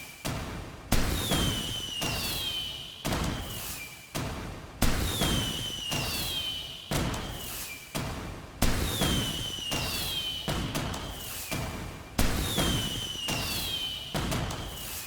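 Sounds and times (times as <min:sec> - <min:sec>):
fireworks whistling: 0:09.0 - 0:10.5, 0:12.4 - 0:15.0.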